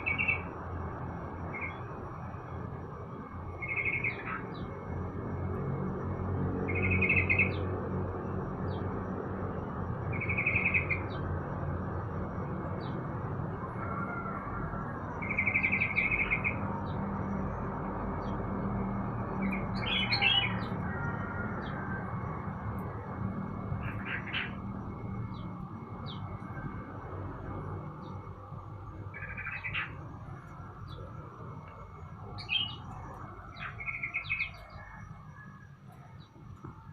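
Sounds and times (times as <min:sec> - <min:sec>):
songbirds trilling and chirping: 0:00.0 - 0:36.9
steady low hum: 0:00.0 - 0:36.9.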